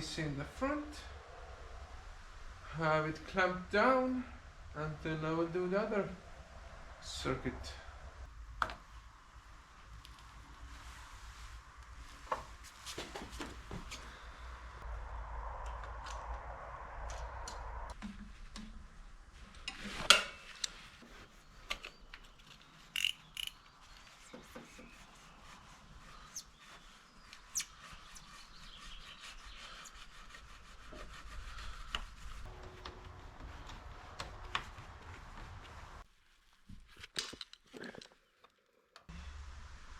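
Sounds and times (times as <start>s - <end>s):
tools and clamps clicking: 23.0s - 23.6s.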